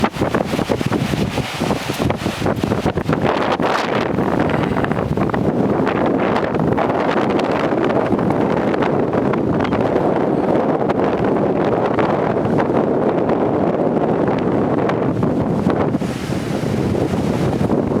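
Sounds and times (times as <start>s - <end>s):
strong wind buffeting microphone: 0.0s - 18.0s.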